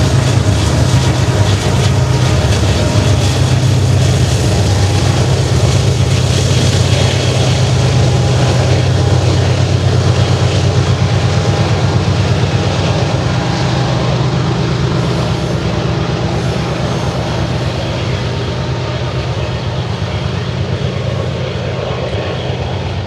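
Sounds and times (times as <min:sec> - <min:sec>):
diesel locomotives rumbling under load: 0:00.0 - 0:23.0
freight cars rolling on rails: 0:00.0 - 0:23.0.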